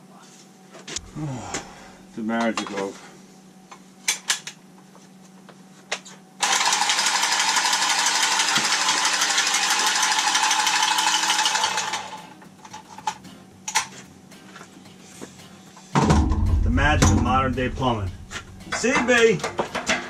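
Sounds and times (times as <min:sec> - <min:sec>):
cordless power tool running: 0:06.4 - 0:12.3.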